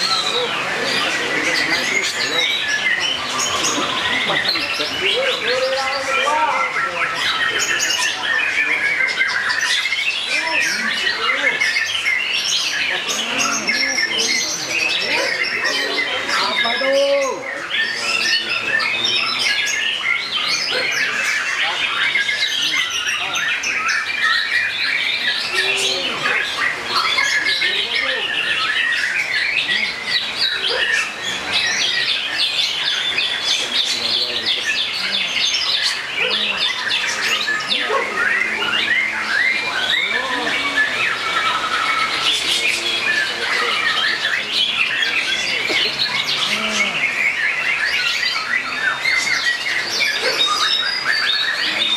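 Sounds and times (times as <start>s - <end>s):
songbirds chirping and trilling: 0.0s - 51.9s.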